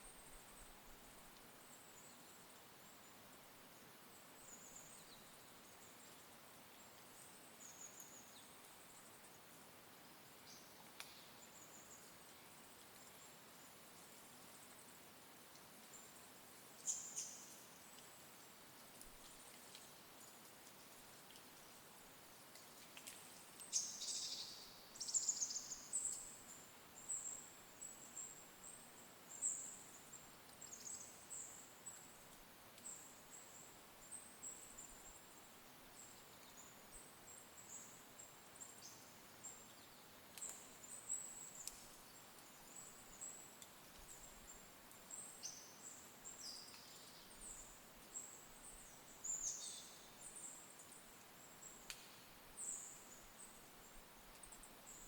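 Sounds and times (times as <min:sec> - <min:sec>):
small birds high-pitched calls: 0:23.6 - 0:32.0.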